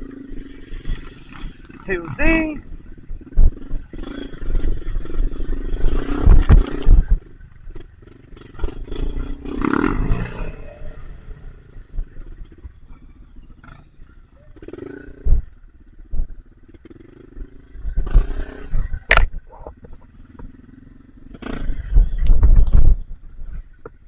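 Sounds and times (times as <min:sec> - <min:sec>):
motorcycle engine revving: 0:00.0 - 0:23.8.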